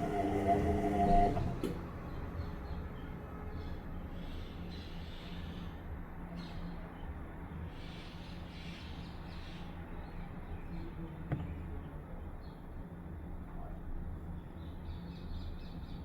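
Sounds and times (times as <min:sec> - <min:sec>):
washing machine running: 0:00.0 - 0:01.9.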